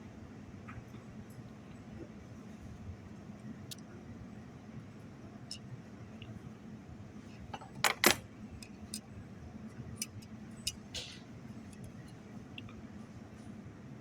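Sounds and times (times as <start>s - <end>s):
small metal parts clinking: 7.5s - 9.0s.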